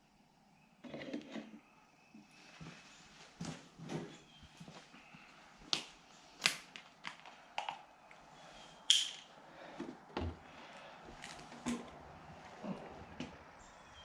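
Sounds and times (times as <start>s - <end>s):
clicks and knocks of handling bottles: 6.7s - 7.9s.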